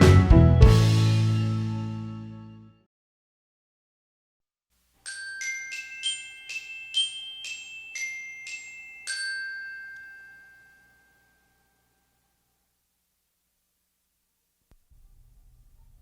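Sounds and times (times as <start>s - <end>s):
glockenspiel-like jingle: 5.0s - 12.2s.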